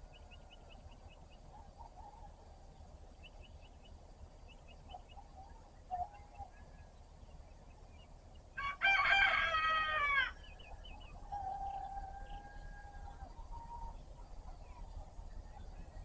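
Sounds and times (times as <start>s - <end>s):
faint bird chirps: 0.0s - 8.5s, 10.2s - 16.0s
rooster crowing: 8.6s - 13.9s.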